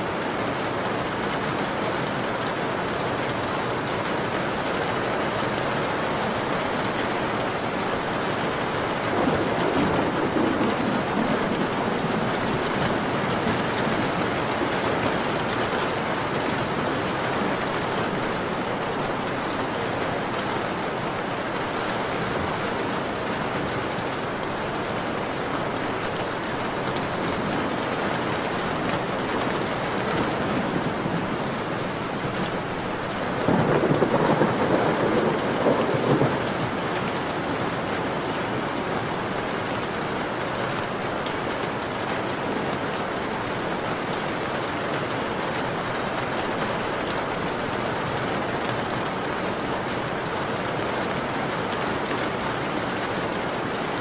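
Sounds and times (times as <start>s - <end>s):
heavy rain falling: 0.0s - 54.0s
low rumble of thunder: 9.0s - 15.5s, 27.3s - 37.3s.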